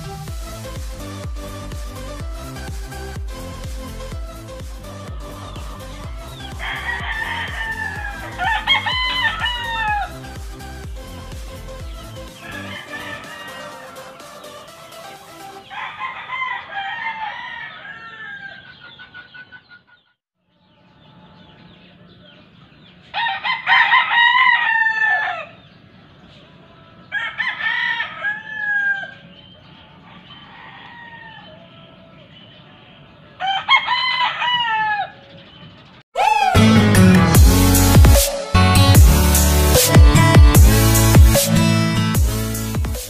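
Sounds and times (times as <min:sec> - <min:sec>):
loud electronic music: 0:00.0 - 0:15.7, 0:36.2 - 0:43.0
roosters crowing: 0:03.3 - 0:20.0, 0:23.0 - 0:25.8, 0:26.6 - 0:32.2, 0:33.2 - 0:38.0.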